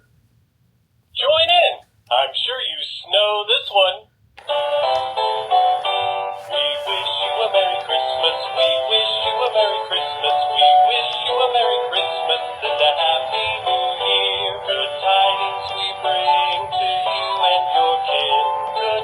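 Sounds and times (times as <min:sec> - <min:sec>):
toy singing through small speaker: 0:04.4 - 0:19.0.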